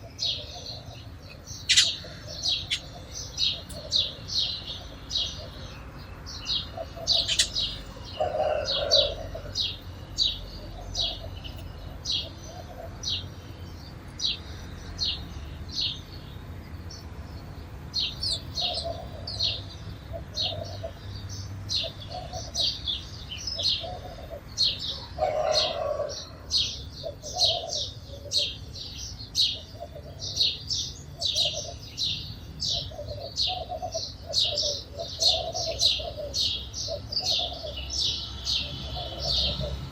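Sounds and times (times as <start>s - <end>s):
softer lower bird calls: 0.0s - 5.8s, 6.6s - 13.6s
sparrows chirping: 0.0s - 39.9s.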